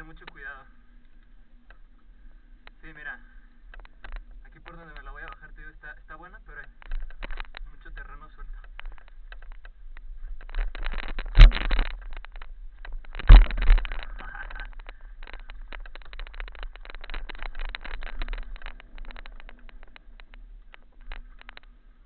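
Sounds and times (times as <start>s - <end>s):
mountain bike rattling over stones: 6.5s - 21.8s.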